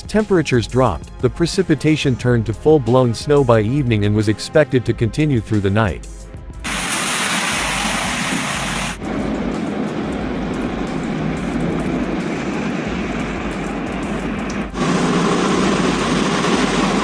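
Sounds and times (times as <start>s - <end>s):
moving vehicle noise: 6.7s - 17.0s.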